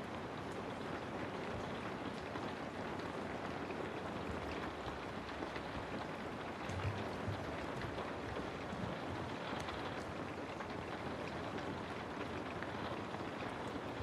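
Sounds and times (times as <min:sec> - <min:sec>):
steady rain on a house: 0:00.0 - 0:14.0.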